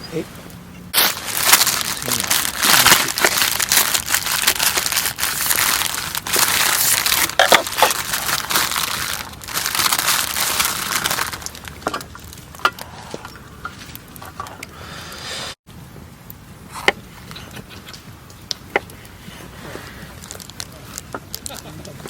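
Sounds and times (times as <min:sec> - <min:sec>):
plastic package crinkling: 0:01.0 - 0:12.6, 0:20.1 - 0:22.0.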